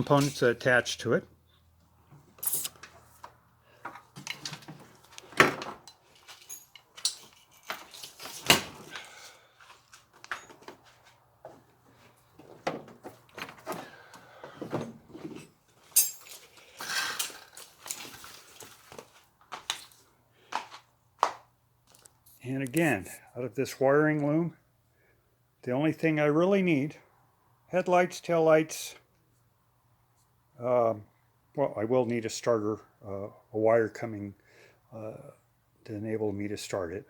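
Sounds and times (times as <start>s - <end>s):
wiring harness clicking and rattling: 2.4s - 9.1s, 12.4s - 20.0s.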